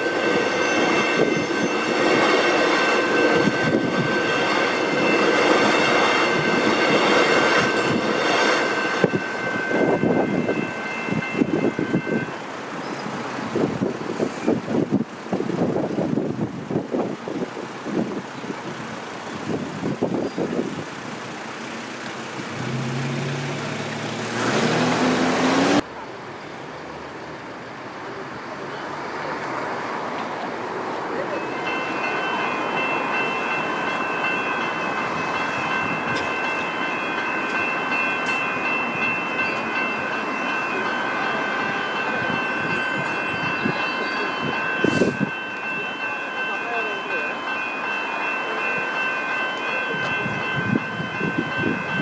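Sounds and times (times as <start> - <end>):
level crossing bells ringing: 0.0 - 13.0, 31.1 - 52.0.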